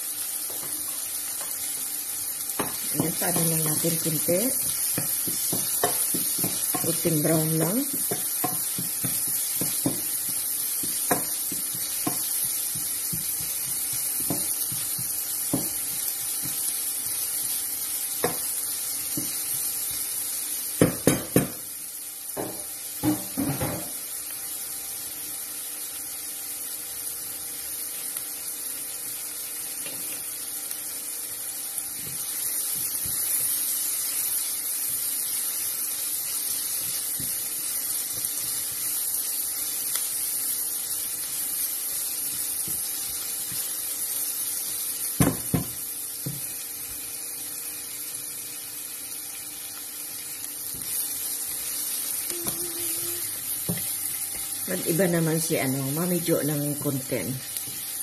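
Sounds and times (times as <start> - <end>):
vegetables sizzling in oil: 0.0 - 58.0
spatula stirring and knocking pan: 2.5 - 21.7, 22.3 - 24.0, 34.8 - 39.7, 41.2 - 43.9, 44.5 - 46.6, 52.3 - 54.8.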